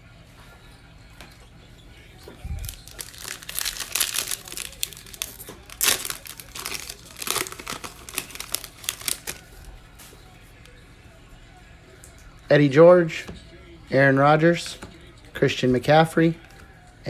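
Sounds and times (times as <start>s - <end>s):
plastic wrapper tearing and crinkling: 2.4s - 9.7s.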